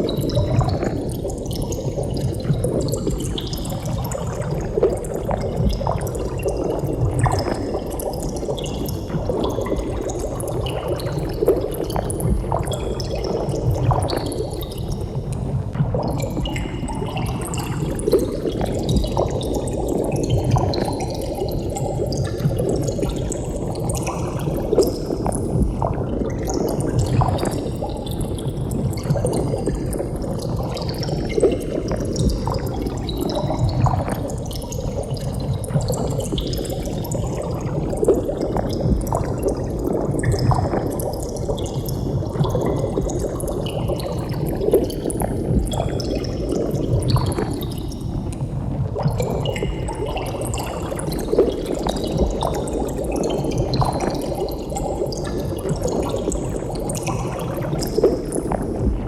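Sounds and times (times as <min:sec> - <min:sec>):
underwater bubbling: 0:00.0 - 0:59.0.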